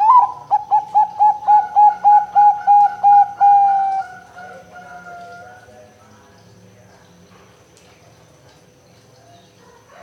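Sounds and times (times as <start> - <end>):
dove cooing: 0.0 - 5.6.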